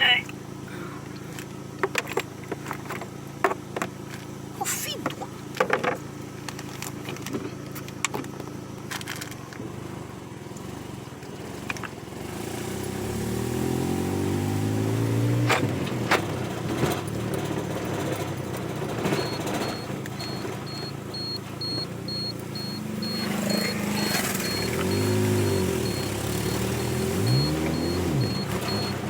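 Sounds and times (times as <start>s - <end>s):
vehicle engine running: 0.0s - 29.0s
knocks and rattles: 15.5s - 29.0s
faint regular beeping: 19.0s - 29.0s.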